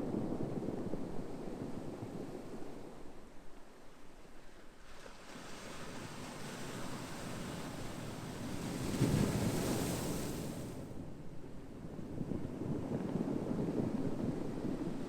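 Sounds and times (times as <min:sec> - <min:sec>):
ocean wave breaking: 0:05.3 - 0:10.8.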